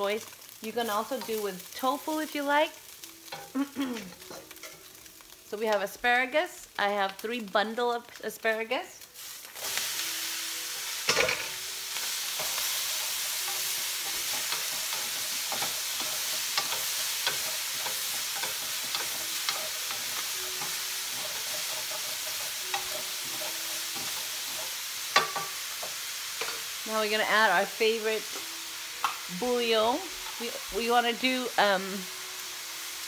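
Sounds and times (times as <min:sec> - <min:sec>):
food sizzling in a frying pan: 0:00.0 - 0:33.0
spatula tapping and scraping pan: 0:13.4 - 0:26.7.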